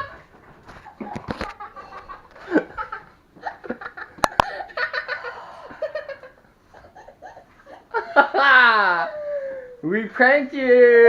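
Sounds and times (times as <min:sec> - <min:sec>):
people laughing and giggling: 0:01.0 - 0:09.6.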